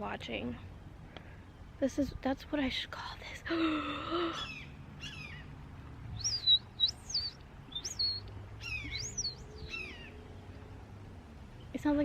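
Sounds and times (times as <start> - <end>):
songbird high whistled notes: 6.2 - 10.1
songbird falling chirps: 6.2 - 10.2.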